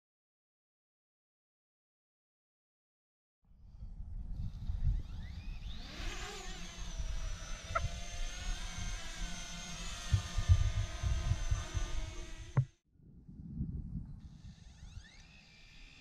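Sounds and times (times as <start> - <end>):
wind buffeting microphone: 3.7 - 15.2
drone propeller whine: 4.4 - 12.8, 14.3 - 16.0.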